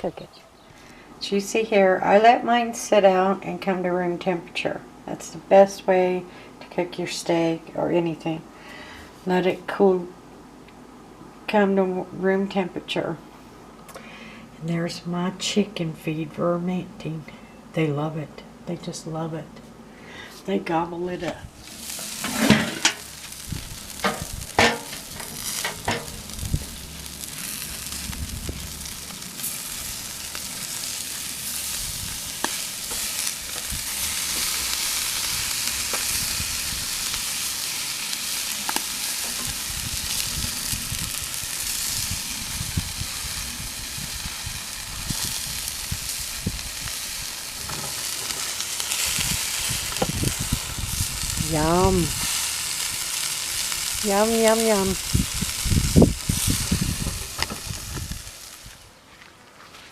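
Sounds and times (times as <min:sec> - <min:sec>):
meat sizzling on a grill: 0:21.6 - 0:58.8
knocks and clatters: 0:24.0 - 0:26.1.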